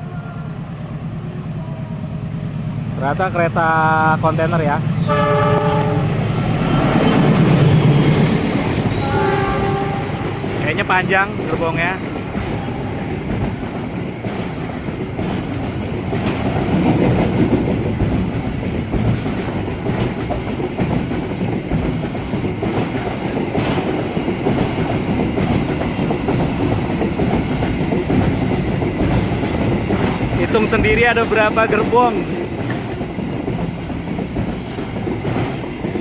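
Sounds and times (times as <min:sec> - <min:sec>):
freight train rumbling past: 0:00.0 - 0:36.0
wheels clicking over rail joints: 0:11.3 - 0:36.0.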